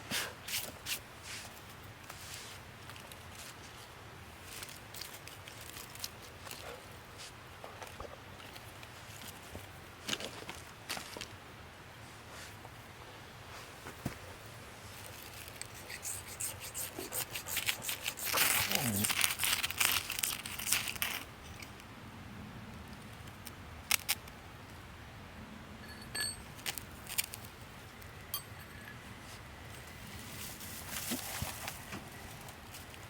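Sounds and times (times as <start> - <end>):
crinkling and tearing: 4.4 - 6.7, 16.6 - 21.3, 23.9 - 24.3, 26.6 - 27.5.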